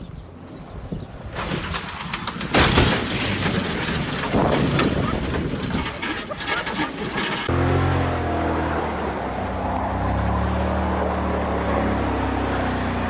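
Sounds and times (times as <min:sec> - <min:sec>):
vehicle road noise: 0:00.0 - 0:13.0
clatter: 0:01.4 - 0:07.5
low engine drone: 0:07.5 - 0:13.0.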